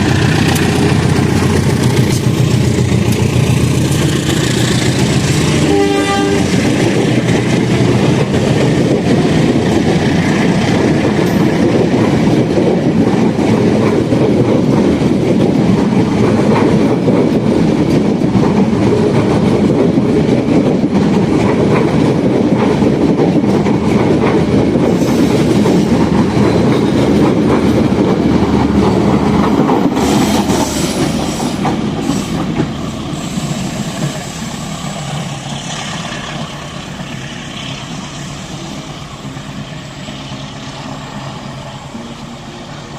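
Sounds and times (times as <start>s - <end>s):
train wheels rumbling on rails: 0.0s - 42.9s.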